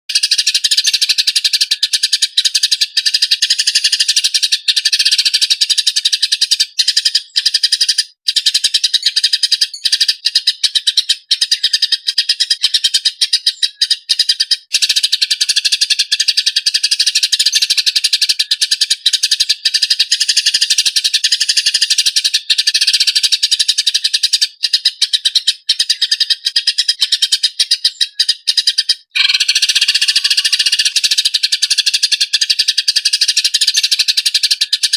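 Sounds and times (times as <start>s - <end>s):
songbird trilling: 0.1s - 34.9s.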